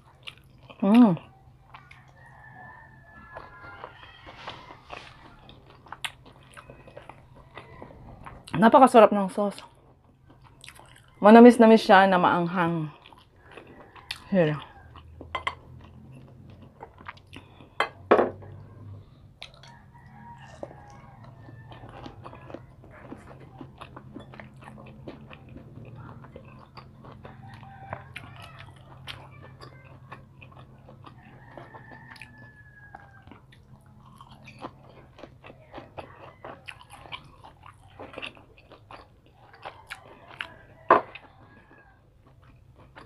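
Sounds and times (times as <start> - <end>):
chewing crunchy fried food: 0.0 - 43.0.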